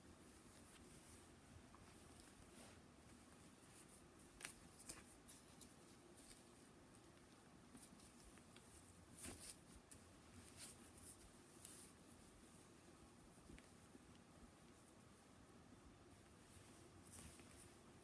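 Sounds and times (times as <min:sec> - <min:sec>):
clothing rustling: 0:00.0 - 0:15.3, 0:16.1 - 0:18.0.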